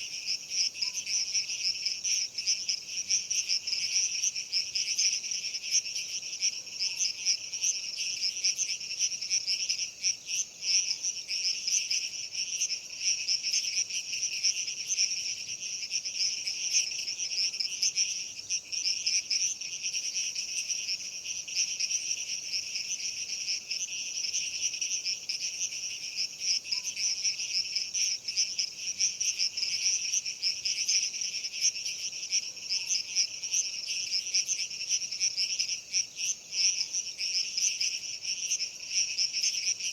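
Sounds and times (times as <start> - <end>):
night insects chirring: 0.0 - 39.9.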